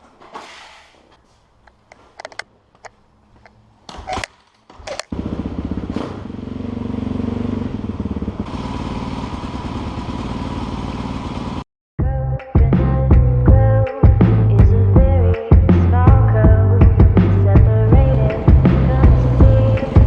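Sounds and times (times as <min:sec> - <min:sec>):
dirt bike engine running: 0:05.1 - 0:11.6, 0:16.8 - 0:20.0.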